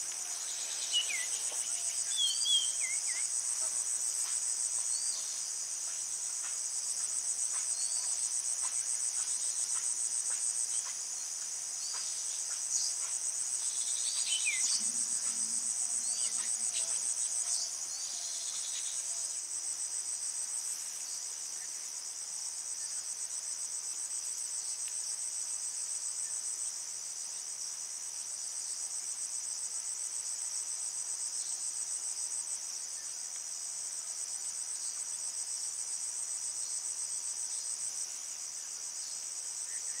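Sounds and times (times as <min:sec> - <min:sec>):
short insect chirps: 0:00.0 - 0:03.3, 0:11.8 - 0:19.2
insect chorus trilling: 0:00.0 - 0:40.0.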